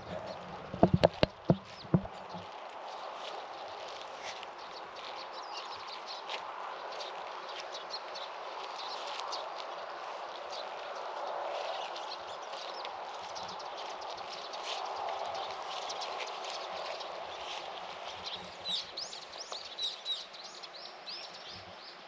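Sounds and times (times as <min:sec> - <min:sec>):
outdoor background hush: 0:00.0 - 0:02.5
small birds chirping: 0:00.0 - 0:22.0.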